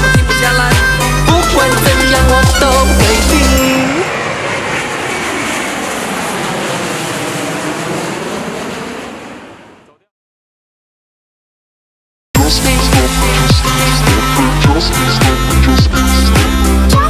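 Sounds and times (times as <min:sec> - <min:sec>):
rushing roar: 0:01.7 - 0:09.8, 0:12.4 - 0:16.9.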